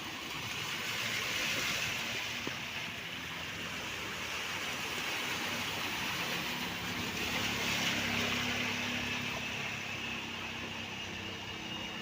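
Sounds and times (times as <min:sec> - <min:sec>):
vehicle engine: 0:00.0 - 0:12.0
water hissing from wheels: 0:00.0 - 0:12.0.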